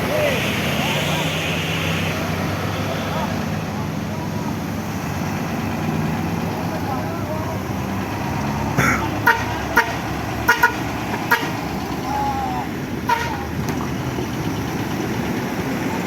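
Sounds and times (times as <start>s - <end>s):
rumble of engines and traffic: 0.0s - 16.0s
vehicle horn toots: 8.8s - 11.6s, 13.0s - 13.5s.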